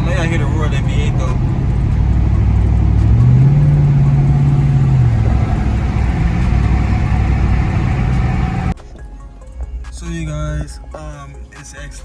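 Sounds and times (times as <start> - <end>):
road noise: 0.0 - 8.8
truck engine roaring: 0.0 - 8.8.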